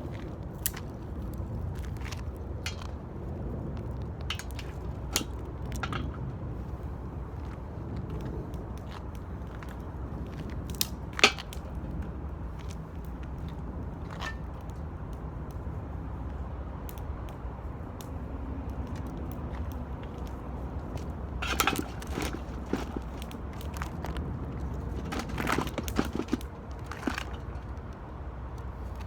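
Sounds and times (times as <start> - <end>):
steady low rumble: 0.0 - 29.0
wood fire crackling: 0.0 - 29.0.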